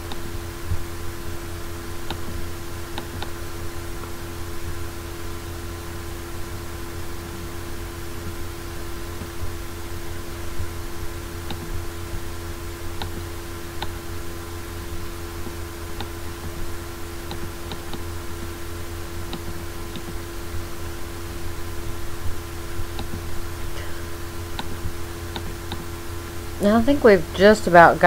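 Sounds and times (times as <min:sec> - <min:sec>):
electrical hum and hiss: 0:00.0 - 0:28.0
computer mouse clicking: 0:19.3 - 0:20.2, 0:24.6 - 0:25.8.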